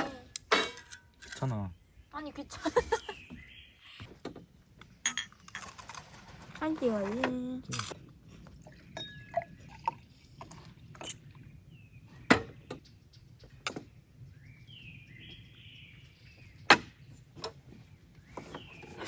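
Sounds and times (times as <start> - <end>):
tableware and gear clicking: 5.0 - 6.0.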